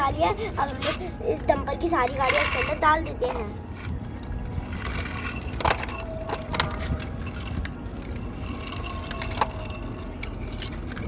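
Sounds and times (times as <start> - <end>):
toy cars dropping into plastic truck: 4.8 - 6.8.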